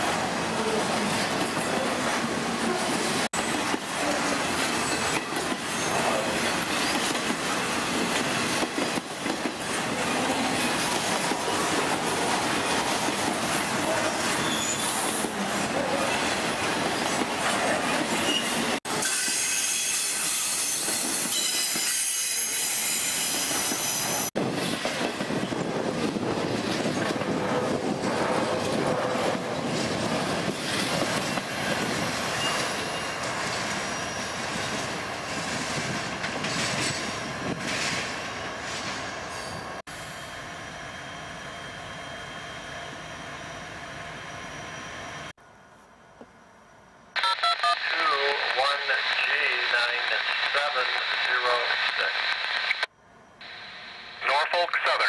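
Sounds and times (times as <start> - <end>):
freight train rolling past: 0.0 - 47.2
high-pitched wheel squeal: 14.3 - 15.2
wheels clattering on rails: 24.8 - 39.0.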